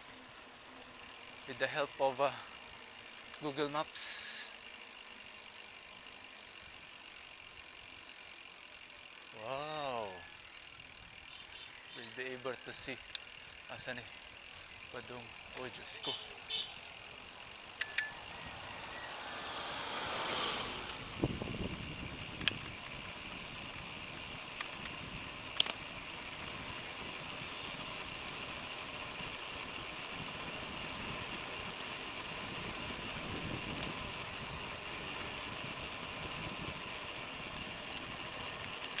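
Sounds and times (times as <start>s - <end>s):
road and wind noise: 10.0s - 39.0s
motor vehicle passing: 16.1s - 23.8s.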